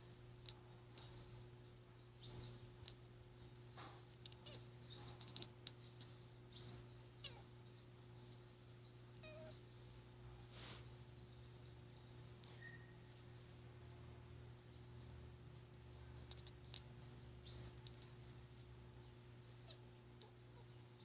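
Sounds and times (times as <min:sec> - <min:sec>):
cat chattering and chirping: 0:03.8 - 0:08.3, 0:09.1 - 0:09.7, 0:16.0 - 0:18.5, 0:19.1 - 0:21.0.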